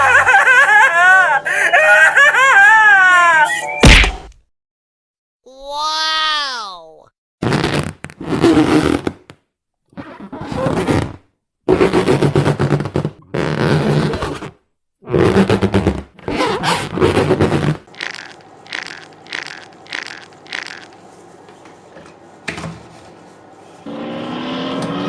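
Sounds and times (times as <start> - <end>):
brief cartoon hit: 3.8 - 4.3.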